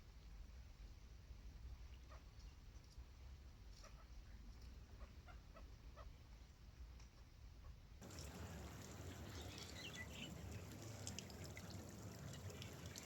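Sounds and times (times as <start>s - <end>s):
small splashes and drips: 8.0s - 13.0s
water lapping and trickling: 8.0s - 13.0s.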